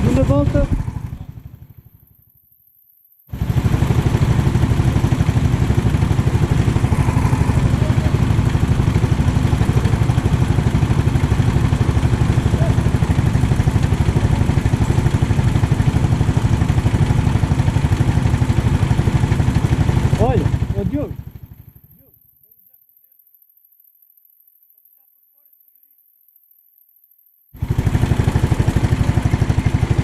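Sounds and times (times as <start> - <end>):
kart engine running hard: 0.0 - 1.9, 3.3 - 21.9, 27.6 - 30.0.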